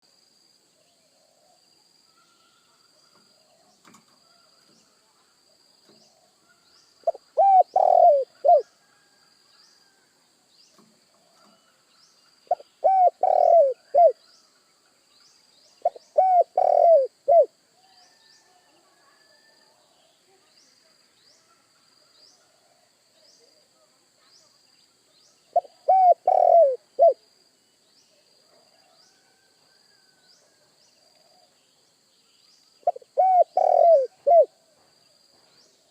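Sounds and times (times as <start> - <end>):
dove cooing: 7.0 - 8.7, 12.5 - 14.2, 15.8 - 17.5, 25.6 - 27.2, 32.8 - 34.6.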